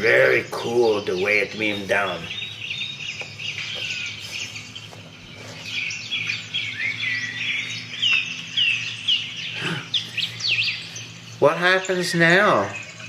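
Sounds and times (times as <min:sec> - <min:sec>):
songbirds chirping and singing: 0:00.0 - 0:13.0
steady low hum: 0:00.0 - 0:13.0.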